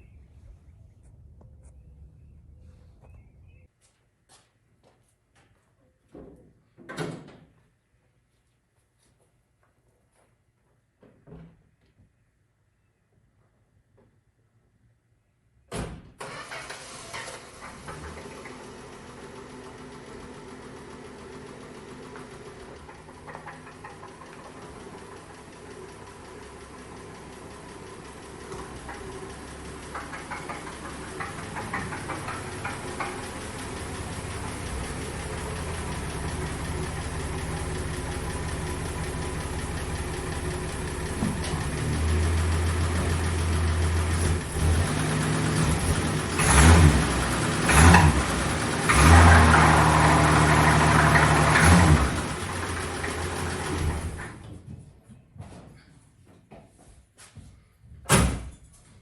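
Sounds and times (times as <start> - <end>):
engine knocking: 18.5 - 54.2
car engine running and revving: 24.3 - 54.2.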